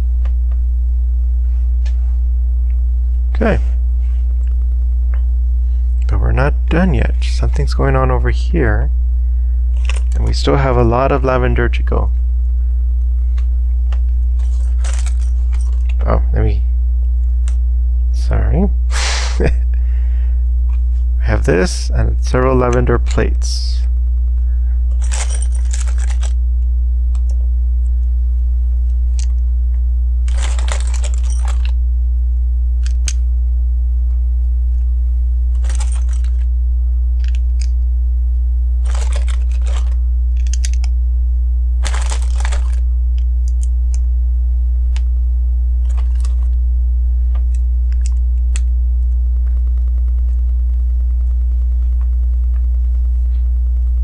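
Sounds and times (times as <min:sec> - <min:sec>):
low electrical hum: 0:00.0 - 0:54.0
plastic bricks clicking and rattling: 0:09.8 - 0:10.2, 0:24.9 - 0:26.4, 0:30.3 - 0:31.7, 0:35.6 - 0:36.4, 0:38.8 - 0:40.9, 0:41.8 - 0:42.8.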